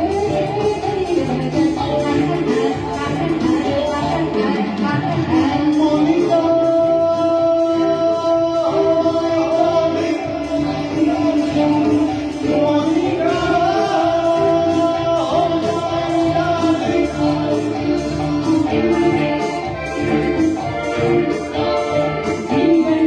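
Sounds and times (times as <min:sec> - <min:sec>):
instrumental accompaniment: 0:00.0 - 0:23.0
person singing: 0:00.0 - 0:23.0.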